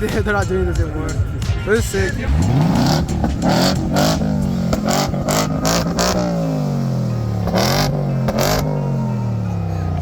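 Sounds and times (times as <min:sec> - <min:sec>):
car engine revving: 0:02.0 - 0:10.0.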